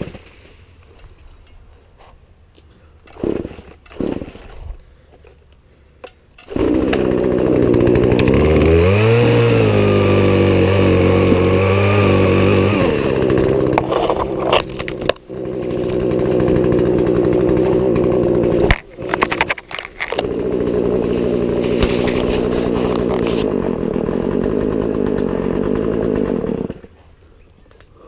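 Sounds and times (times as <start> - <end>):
chainsaw engine revving: 3.0 - 4.6, 6.4 - 27.0.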